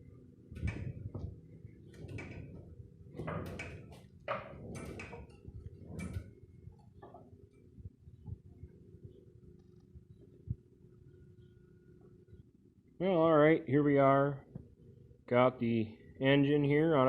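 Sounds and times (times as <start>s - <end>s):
low steady hum: 0.0s - 17.0s
knocks and clunks: 0.6s - 6.3s.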